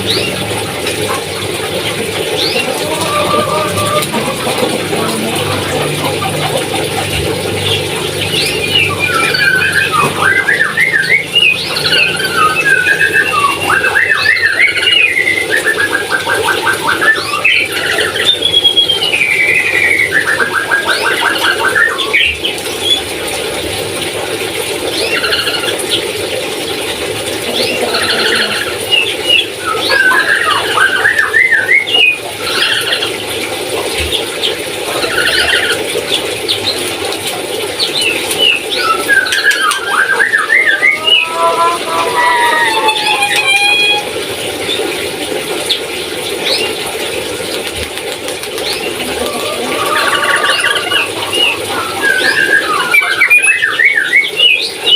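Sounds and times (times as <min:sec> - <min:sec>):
parrot squeals and whistles: 0:38.8 - 0:44.2.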